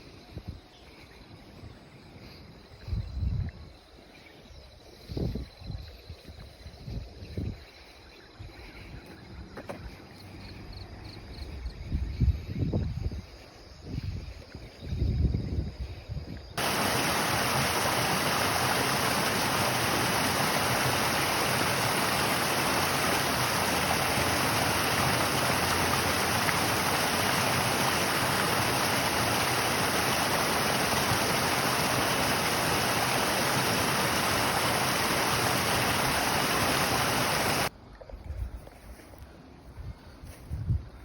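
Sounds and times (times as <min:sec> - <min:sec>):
rushing water: 0:16.6 - 0:37.7.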